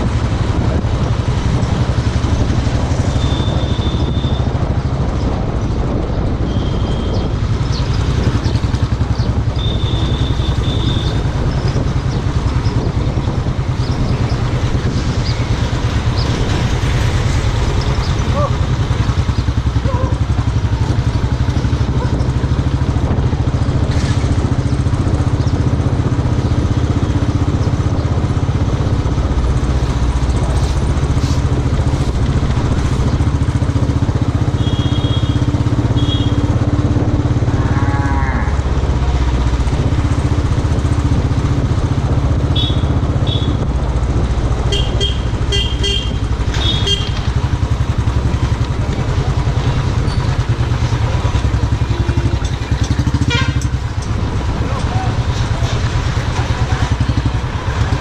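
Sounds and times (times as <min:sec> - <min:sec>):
motorcycle engine running: 0:00.0 - 0:58.0
traffic horns honking: 0:03.0 - 0:04.7, 0:06.4 - 0:07.4, 0:09.4 - 0:11.4, 0:34.3 - 0:38.9, 0:42.4 - 0:43.7, 0:44.6 - 0:47.8, 0:51.5 - 0:54.0.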